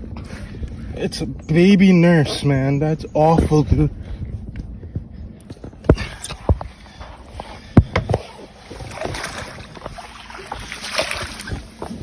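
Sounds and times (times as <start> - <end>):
water splashing: 6.0 - 12.0.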